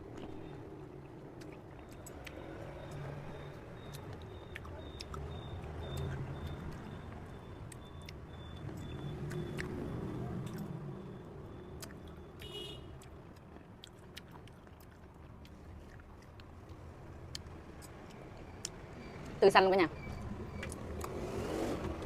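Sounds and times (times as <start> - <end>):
person chewing cherries: 11.7 - 18.8.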